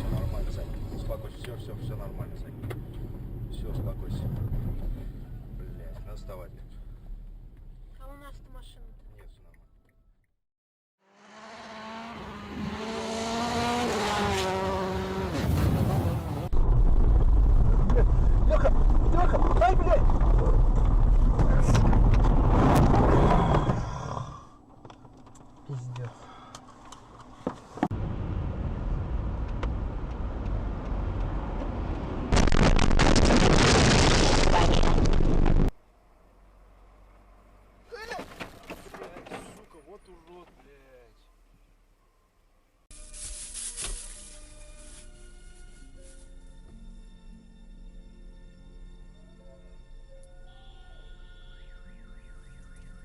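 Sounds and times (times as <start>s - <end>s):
road and wind rumble: 0.0s - 9.9s, 11.2s - 40.8s
car engine: 11.0s - 23.8s, 24.6s - 33.2s, 33.8s - 42.0s.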